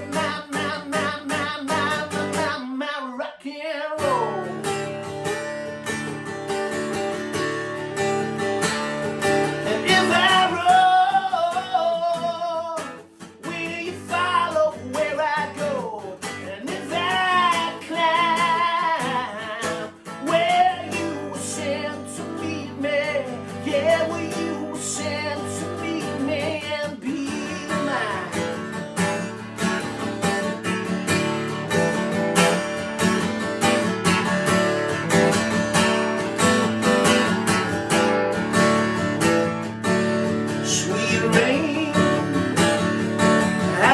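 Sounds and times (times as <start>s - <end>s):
wordless vocal melody: 0.0s - 4.8s, 9.4s - 28.7s, 40.6s - 43.9s
strummed guitar: 0.0s - 43.9s.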